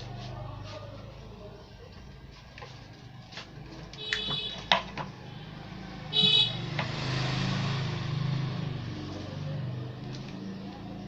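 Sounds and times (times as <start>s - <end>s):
high-pitched vehicle horn toot: 4.0s - 4.7s, 6.1s - 6.7s
vehicle passing: 5.0s - 11.0s.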